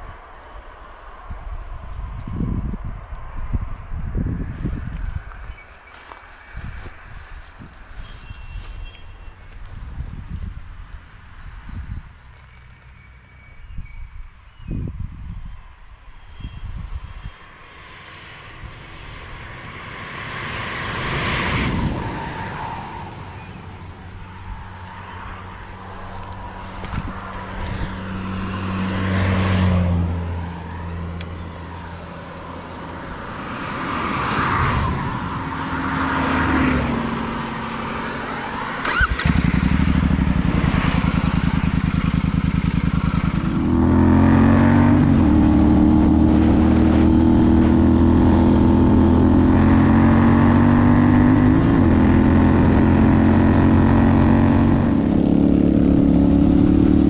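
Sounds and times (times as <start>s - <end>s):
motorcycle engine and exhaust: 0.0s - 57.0s.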